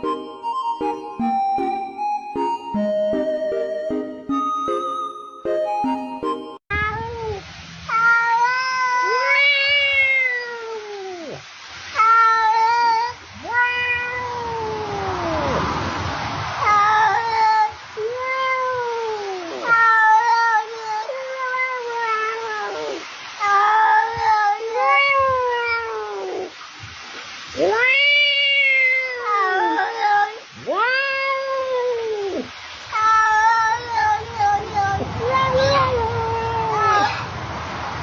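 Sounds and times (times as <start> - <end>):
cat meowing in long yowls: 6.7 - 15.8, 16.6 - 26.6, 27.5 - 37.4.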